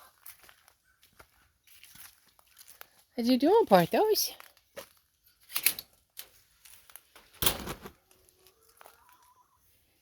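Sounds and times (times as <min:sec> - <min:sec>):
rustling and crunching: 0:00.0 - 0:03.1, 0:03.8 - 0:09.7
soft chicken calls: 0:08.2 - 0:10.0.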